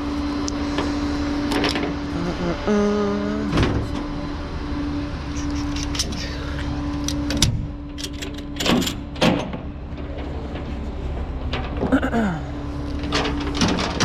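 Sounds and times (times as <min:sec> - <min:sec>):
tow truck engine rumbling: 0:00.0 - 0:14.0
metallic clanks and clicks: 0:07.0 - 0:10.8, 0:12.9 - 0:14.0.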